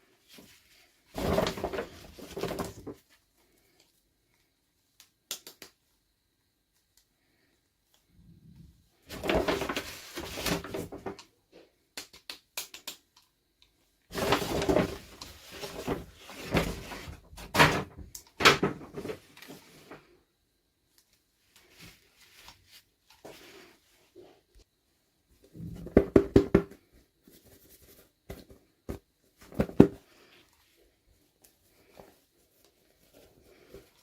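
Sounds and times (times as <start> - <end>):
packaging rustling and scraping: 1.1 - 3.0, 9.1 - 11.1, 14.1 - 17.9.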